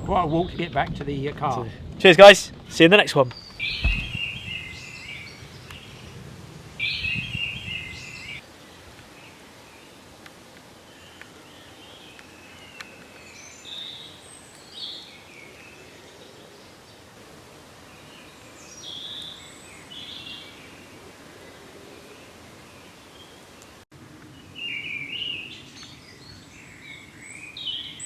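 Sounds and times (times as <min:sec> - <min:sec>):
songbird singing: 0:00.0 - 0:10.0, 0:10.8 - 0:17.1, 0:17.8 - 0:28.0
faint steady hiss: 0:00.7 - 0:28.0
low rumble: 0:03.6 - 0:04.6.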